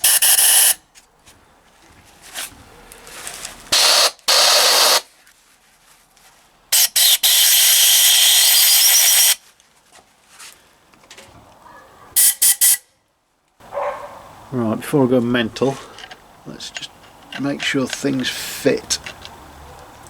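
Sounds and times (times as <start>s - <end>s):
light clicks and handling: 15.8s - 20.0s.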